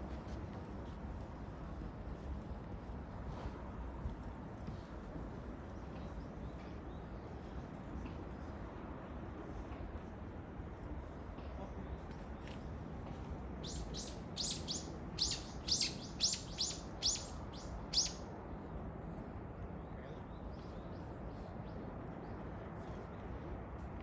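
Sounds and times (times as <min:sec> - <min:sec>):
low background noise: 0:00.0 - 0:24.0
bird chirping: 0:13.6 - 0:18.2.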